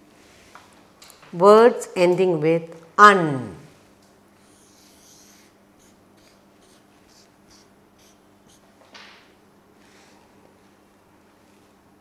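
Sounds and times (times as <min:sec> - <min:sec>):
pen scratching while writing: 0:04.5 - 0:08.6.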